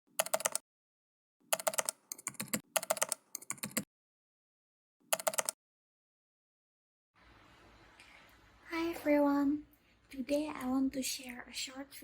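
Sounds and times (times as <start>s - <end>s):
rapid keyboard typing clicks: 0.2s - 0.6s, 1.5s - 3.9s, 5.1s - 5.6s.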